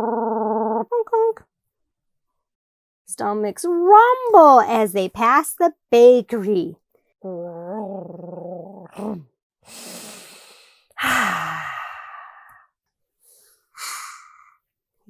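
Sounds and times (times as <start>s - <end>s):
person humming low growl: 0.0s - 0.9s, 7.2s - 9.3s, 11.0s - 12.5s
person sighing: 9.0s - 12.6s
person sniffing: 9.0s - 12.6s, 13.3s - 14.6s.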